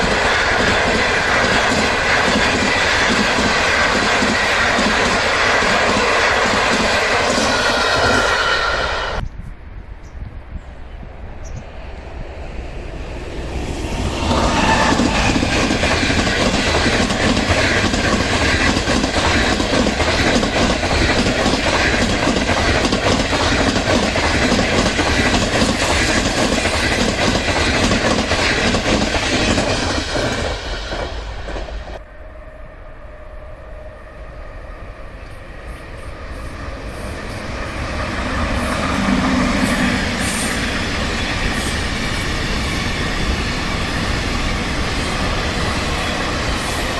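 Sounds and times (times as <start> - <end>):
train wheels clattering: 0.0 - 9.2, 13.9 - 32.0
train approaching: 0.0 - 46.9.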